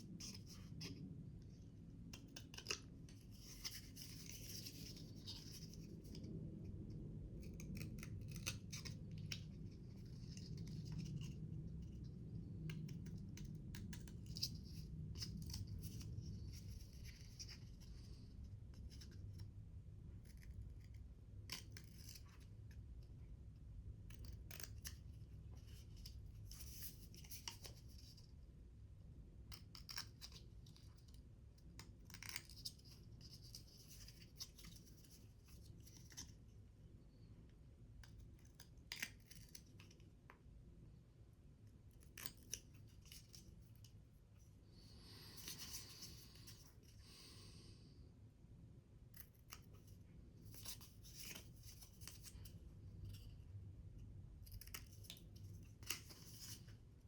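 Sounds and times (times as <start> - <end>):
scissors snipping paper: 29.5 - 36.3, 42.0 - 43.5.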